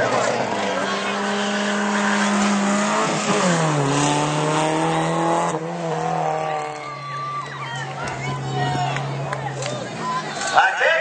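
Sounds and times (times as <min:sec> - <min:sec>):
car engine at full throttle: 0:00.0 - 0:10.4.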